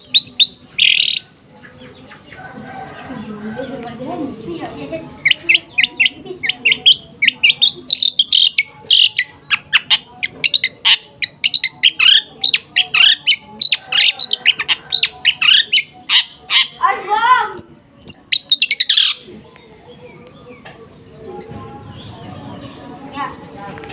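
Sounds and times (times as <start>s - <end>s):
small bird chirping rapidly: 0.0s - 1.3s.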